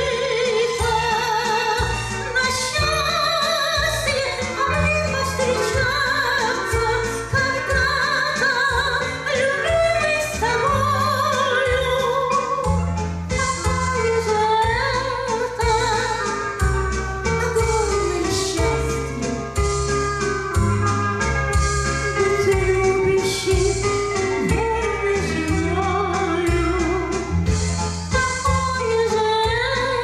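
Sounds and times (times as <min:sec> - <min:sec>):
person singing with vibrato: 0:00.0 - 0:16.7
backing accompaniment with bass: 0:00.0 - 0:30.0.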